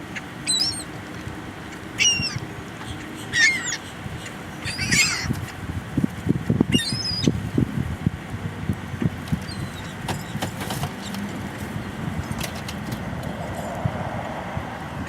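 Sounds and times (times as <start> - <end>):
seagulls squealing: 0.1 - 0.9, 1.7 - 5.6, 6.7 - 7.4, 9.4 - 11.2.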